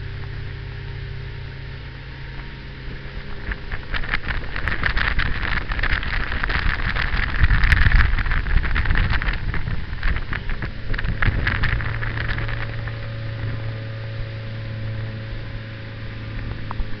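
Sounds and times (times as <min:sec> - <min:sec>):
motorboat engine humming: 0:00.0 - 0:17.0
wind noise on microphone: 0:02.2 - 0:17.0.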